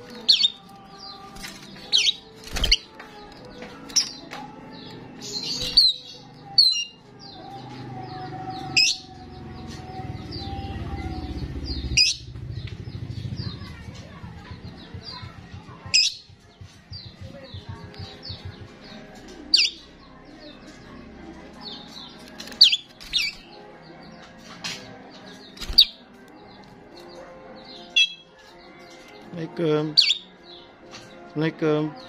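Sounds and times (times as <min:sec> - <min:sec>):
starling chirping: 0:00.1 - 0:02.9, 0:05.2 - 0:13.8, 0:15.9 - 0:20.6, 0:21.6 - 0:24.2, 0:25.3 - 0:29.3, 0:29.9 - 0:31.2.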